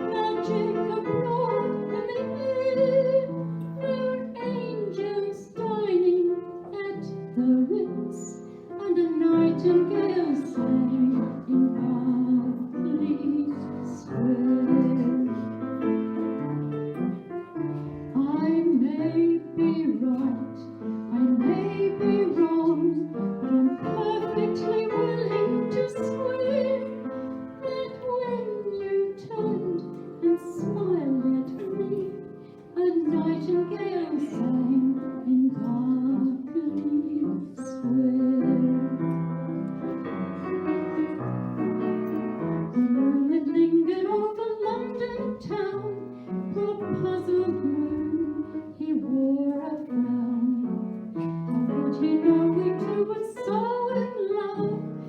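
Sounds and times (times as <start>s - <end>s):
piano accompaniment: 0.0s - 55.0s.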